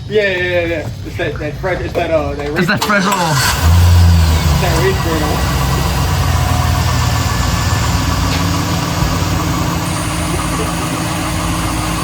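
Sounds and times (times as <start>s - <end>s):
pickup truck engine idling: 2.7s - 12.0s.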